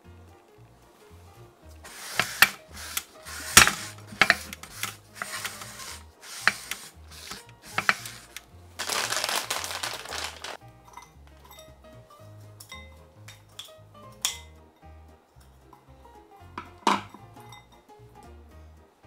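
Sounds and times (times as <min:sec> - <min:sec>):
utensil scraping in frying pan: 0:01.8 - 0:08.4.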